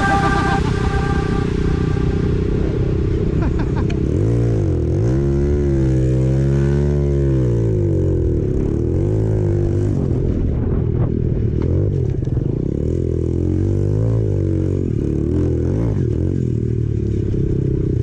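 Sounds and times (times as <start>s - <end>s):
dirt bike engine revving: 0.0s - 7.6s.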